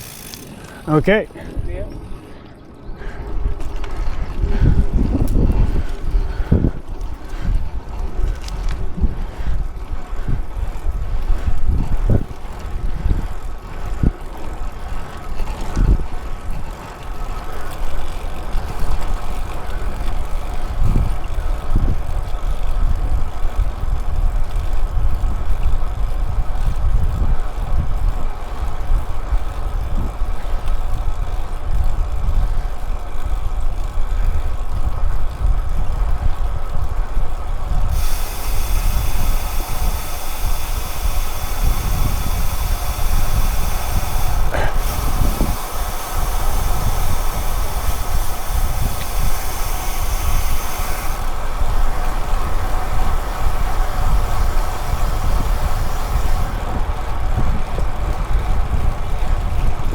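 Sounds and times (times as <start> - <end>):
hiss: 37.9 - 56.6.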